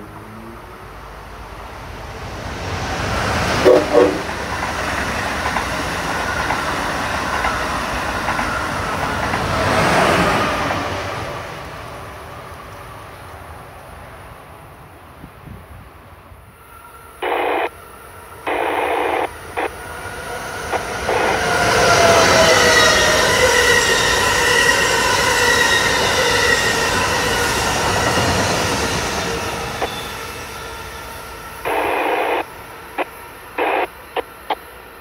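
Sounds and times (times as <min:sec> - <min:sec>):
train passing with whine: 0:00.0 - 0:35.0
sharp bursts of noise: 0:17.2 - 0:17.7, 0:18.5 - 0:19.8, 0:20.6 - 0:22.4, 0:31.6 - 0:34.7.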